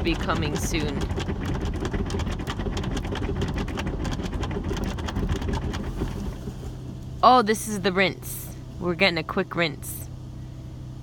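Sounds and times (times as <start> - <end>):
water spray pelting car roof: 0.0 - 7.0
car wash machinery rumble: 0.0 - 11.0.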